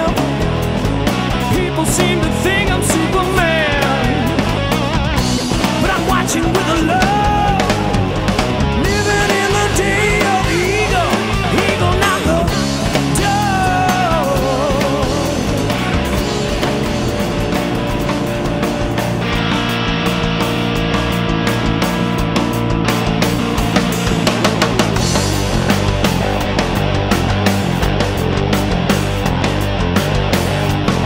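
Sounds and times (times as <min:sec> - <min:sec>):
bass guitar: 0:00.0 - 0:31.0
drums: 0:00.0 - 0:31.0
electric guitar solo: 0:14.9 - 0:31.0.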